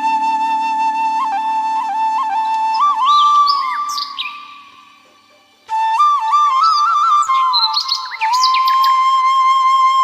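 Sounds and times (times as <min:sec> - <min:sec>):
flute holding a note: 0:00.0 - 0:03.9.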